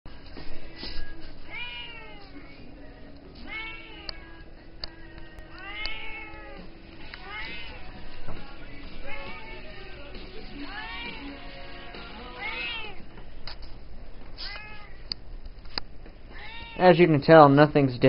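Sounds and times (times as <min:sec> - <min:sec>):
cat meowing: 0:01.5 - 0:02.5, 0:03.4 - 0:04.4, 0:05.5 - 0:08.0, 0:09.0 - 0:09.8, 0:10.6 - 0:11.4, 0:12.3 - 0:13.0, 0:14.4 - 0:15.0, 0:16.3 - 0:16.9.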